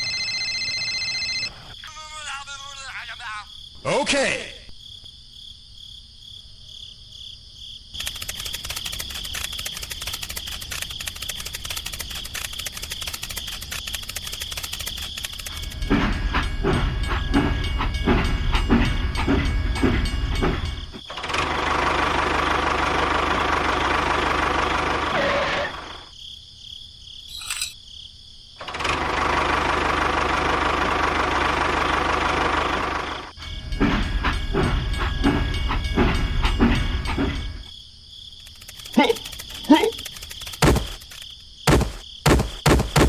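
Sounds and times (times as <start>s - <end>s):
small engine running: 8.0s - 26.1s, 28.6s - 37.7s, 38.4s - 43.0s.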